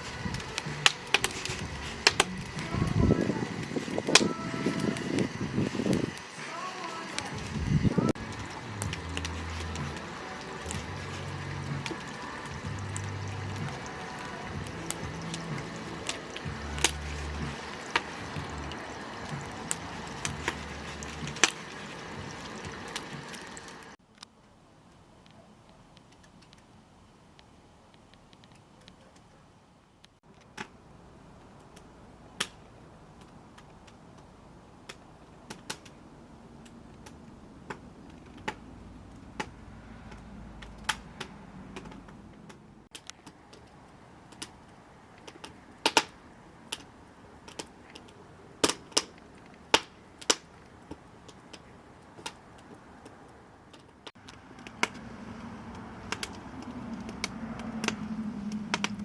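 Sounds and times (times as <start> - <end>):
low hiss: 0.0 - 30.2
wood fire crackling: 0.0 - 59.0
low rumble: 7.3 - 21.4, 54.4 - 59.0.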